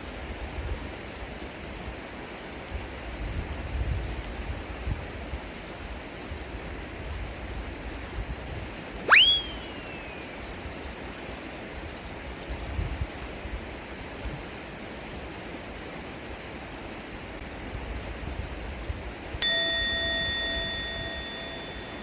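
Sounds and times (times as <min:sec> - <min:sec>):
bell-like ding: 0:19.4 - 0:22.0.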